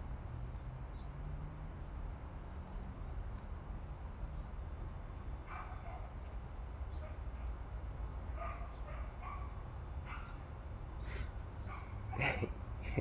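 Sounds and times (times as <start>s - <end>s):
dog barking: 5.5s - 6.1s, 8.4s - 10.4s, 11.6s - 12.5s.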